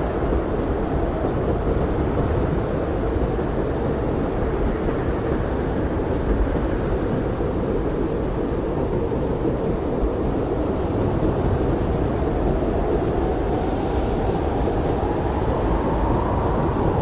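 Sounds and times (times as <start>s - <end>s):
blizzard wind blowing: 0.0s - 17.0s.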